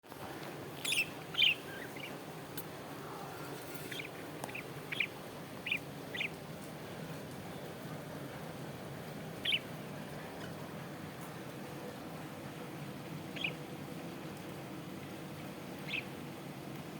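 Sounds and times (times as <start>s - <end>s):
low background hum: 0.1s - 16.9s
parrots chirping: 0.8s - 2.2s, 3.7s - 6.4s, 9.4s - 9.6s, 15.8s - 16.1s.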